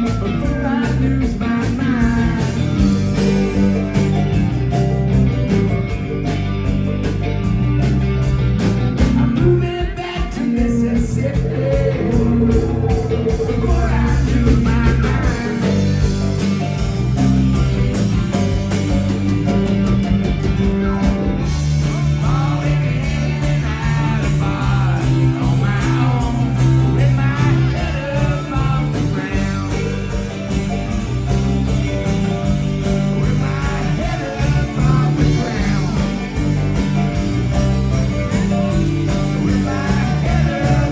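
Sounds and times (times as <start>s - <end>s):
person singing: 0.0s - 3.5s, 9.0s - 16.4s, 20.5s - 30.4s, 33.0s - 36.7s, 39.1s - 40.9s
live rock band playing: 0.0s - 40.9s.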